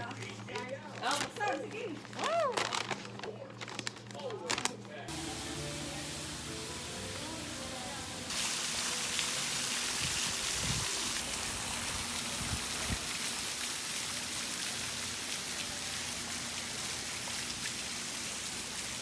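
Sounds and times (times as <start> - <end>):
falling water hiss: 5.1 - 19.0.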